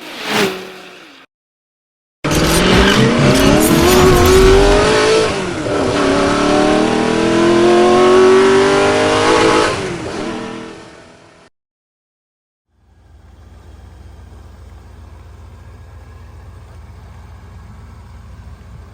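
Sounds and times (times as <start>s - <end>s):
car engine accelerating hard: 2.3s - 11.4s.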